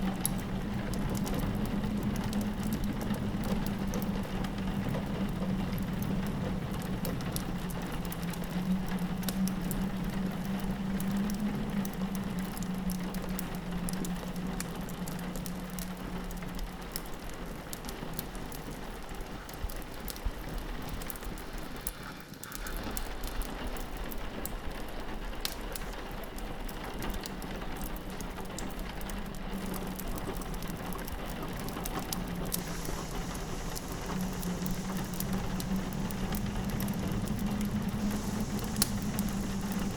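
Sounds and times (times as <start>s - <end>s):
rain pattering on a window: 0.0s - 39.9s
wood fire crackling: 0.0s - 39.9s
low wind drone: 28.9s - 39.9s.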